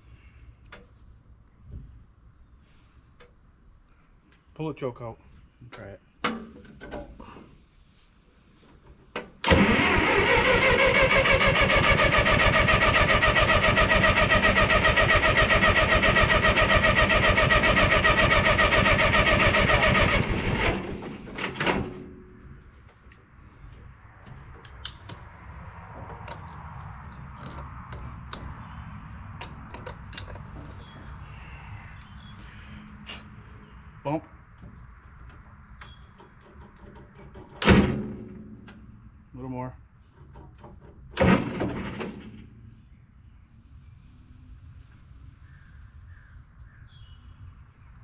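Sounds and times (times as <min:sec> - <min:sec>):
tractor starter cranking engine: 0:09.4 - 0:22.2, 0:40.2 - 0:42.5.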